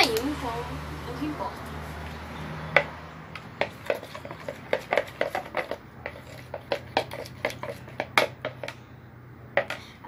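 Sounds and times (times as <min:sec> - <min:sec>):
hard objects knocking together: 0:02.7 - 0:08.8.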